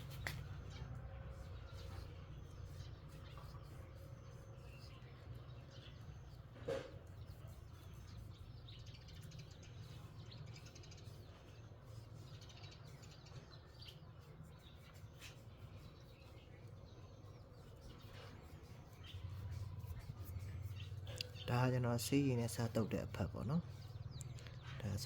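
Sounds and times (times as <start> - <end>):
faint bird chirps: 0.0 - 25.0
low steady hum: 15.5 - 25.0.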